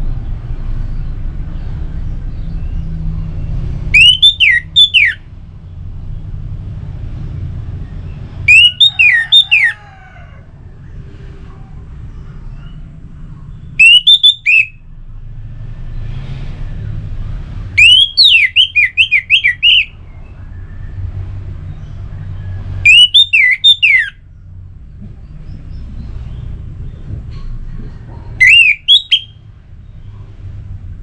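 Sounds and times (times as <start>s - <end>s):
thrush whistling song: 3.9s - 5.3s, 8.3s - 9.8s, 13.7s - 14.9s, 17.7s - 21.0s, 22.3s - 24.3s, 28.2s - 29.6s.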